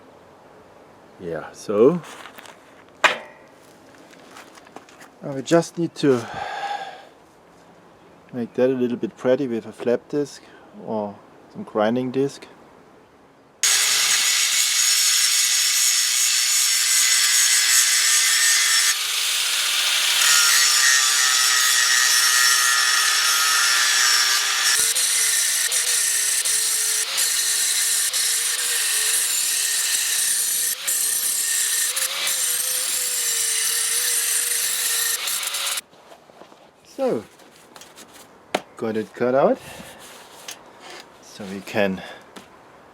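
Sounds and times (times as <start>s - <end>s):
angle grinder cutting metal: 13.6s - 35.8s.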